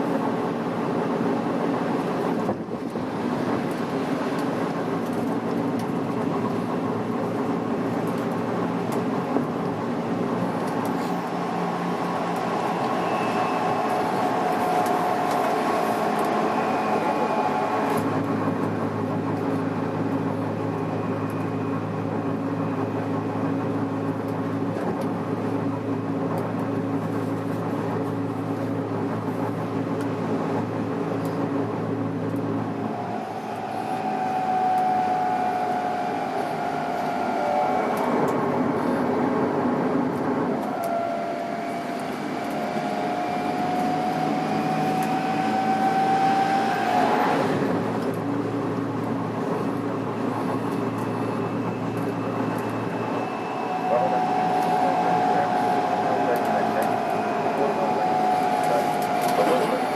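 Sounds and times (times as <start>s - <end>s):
train inverter whine: 0.0s - 59.9s
train running hum: 0.0s - 59.9s.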